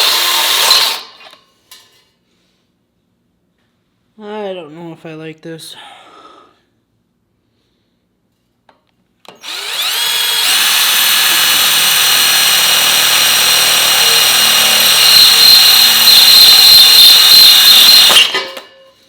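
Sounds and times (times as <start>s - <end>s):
power tool motor whining on metal: 9.3s - 18.3s.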